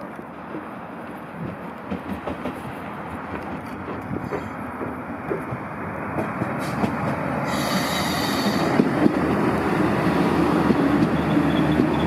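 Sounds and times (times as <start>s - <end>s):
train passing close by: 0.0s - 12.0s
high-pitched wheel squeal: 11.0s - 12.0s.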